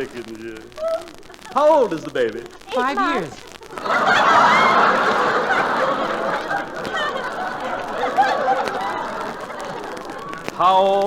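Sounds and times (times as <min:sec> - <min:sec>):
studio audience laughing: 0:03.6 - 0:10.6.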